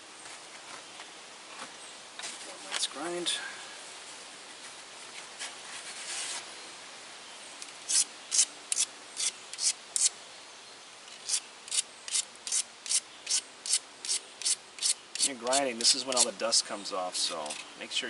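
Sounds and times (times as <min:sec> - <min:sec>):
soft scratch: 0:04.5 - 0:06.5.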